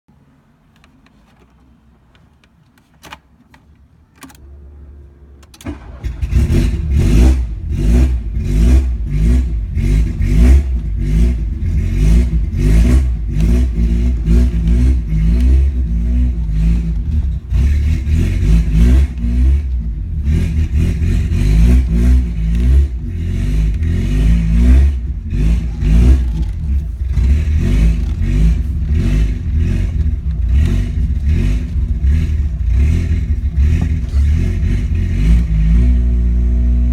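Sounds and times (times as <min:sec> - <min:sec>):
car engine cranking: 0:00.7 - 0:36.9
car engine running loudly: 0:04.8 - 0:36.9.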